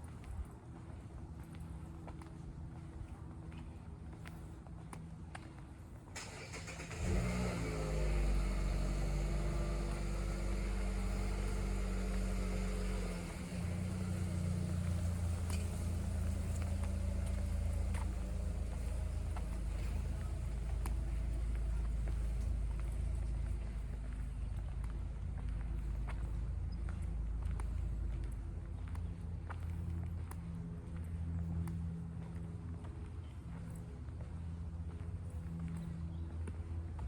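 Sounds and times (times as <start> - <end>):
car engine starting and running: 6.2 - 31.7.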